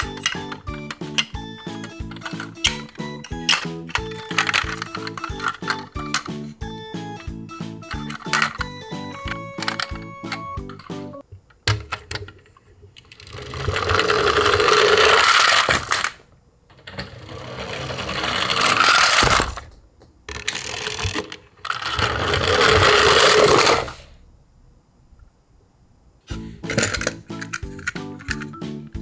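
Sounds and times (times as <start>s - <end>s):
toy wheels rumbling on wood: 0.0s - 6.5s, 7.8s - 10.0s, 13.0s - 19.7s, 20.3s - 24.0s.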